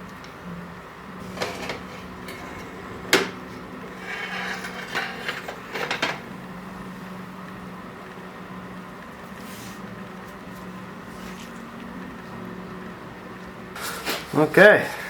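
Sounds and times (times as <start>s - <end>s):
steady low hum: 0.0s - 13.8s
rubbing and scraping: 1.2s - 6.2s.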